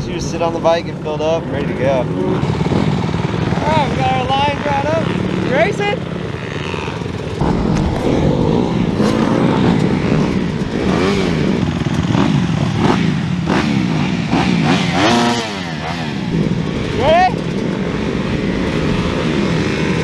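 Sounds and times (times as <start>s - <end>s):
dirt bikes revving: 0.0s - 20.0s.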